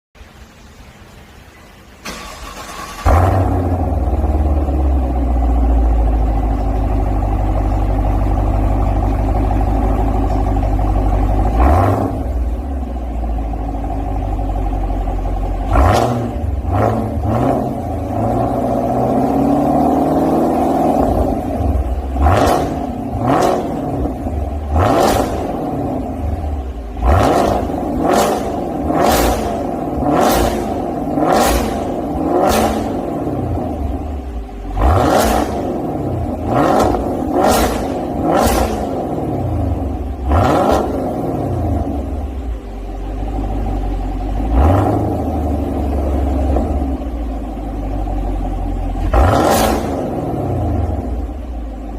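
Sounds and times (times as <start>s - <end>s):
car engine idling: 0.2s - 51.9s
car engine revving: 2.0s - 51.9s.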